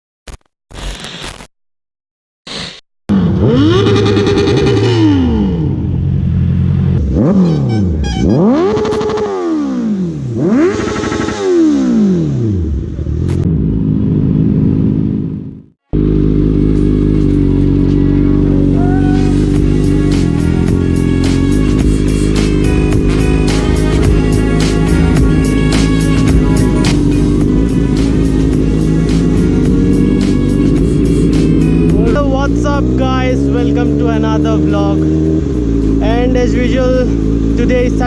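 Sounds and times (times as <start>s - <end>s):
motorcycle engines revving hard: 3.1s - 38.0s
music: 18.8s - 34.0s.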